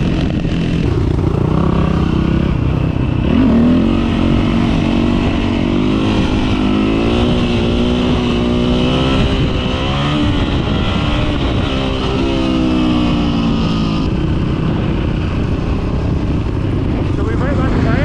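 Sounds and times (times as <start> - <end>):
dirt bike engine running: 0.0 - 18.0
wind rush on microphone: 0.0 - 18.0.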